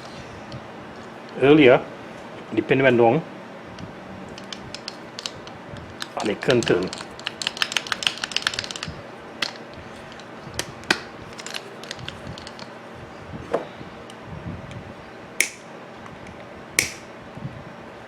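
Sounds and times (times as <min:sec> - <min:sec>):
angle grinder parts clicking: 0:16.8 - 0:17.0.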